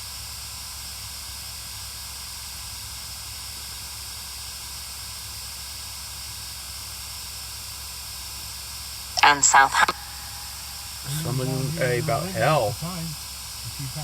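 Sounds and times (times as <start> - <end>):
low even hum: 9.2 - 14.0
steady hiss: 9.3 - 14.0.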